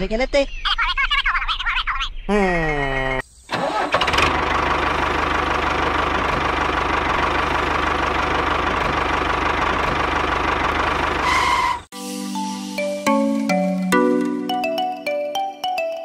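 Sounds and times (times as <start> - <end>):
small engine chugging: 3.5 - 11.8.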